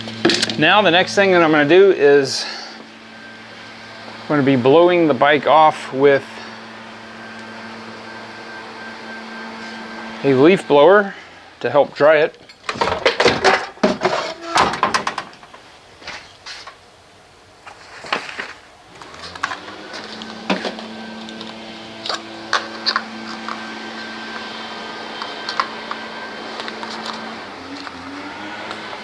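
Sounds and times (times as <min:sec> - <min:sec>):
leaf blower running: 0:00.0 - 0:15.2, 0:17.7 - 0:29.0
knocks and clatters: 0:12.4 - 0:15.6.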